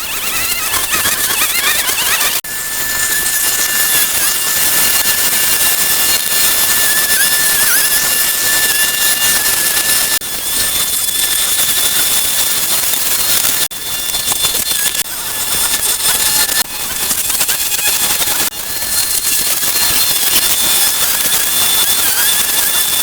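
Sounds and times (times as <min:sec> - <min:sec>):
machine rushing hiss and whine: 0:00.0 - 0:23.0.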